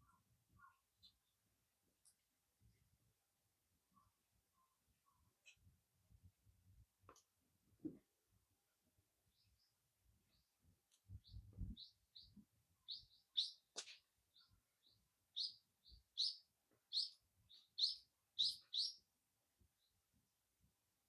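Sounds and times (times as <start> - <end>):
small bird chirping: 9.3 - 19.1.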